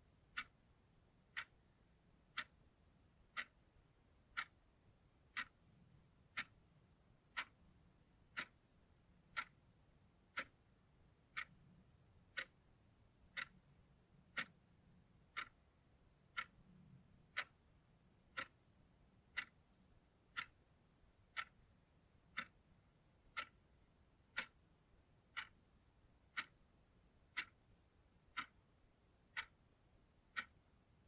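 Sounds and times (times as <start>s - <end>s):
clock ticking: 0.0s - 31.0s.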